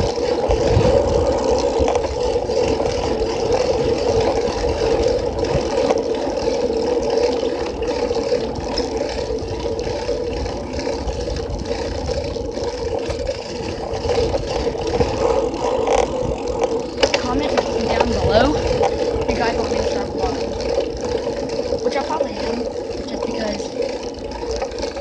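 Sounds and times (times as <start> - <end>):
wind rush: 0.0 - 5.9
constant hum: 0.0 - 25.0.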